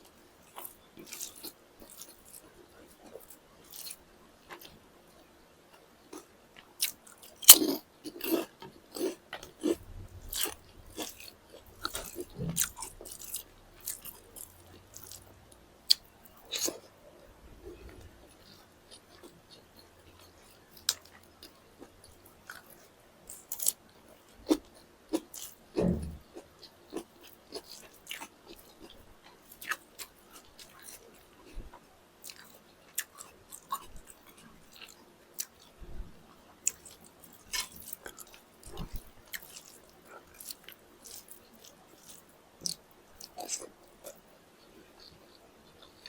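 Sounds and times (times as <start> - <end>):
close chewing and mouth clicks: 0.0 - 35.8, 36.5 - 46.0
food crunching: 6.1 - 16.9, 17.7 - 23.8, 24.4 - 31.3, 32.2 - 35.7, 36.6 - 44.2.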